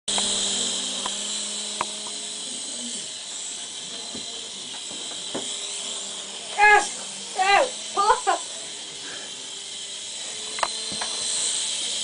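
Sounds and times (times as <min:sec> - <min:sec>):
toy helicopter motor whir: 0:00.1 - 0:12.0.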